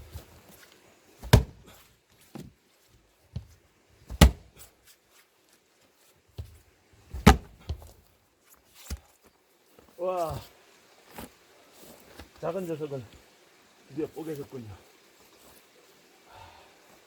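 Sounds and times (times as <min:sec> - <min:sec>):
axe splitting log: 0:01.2 - 0:02.4, 0:04.1 - 0:04.6, 0:07.1 - 0:07.9.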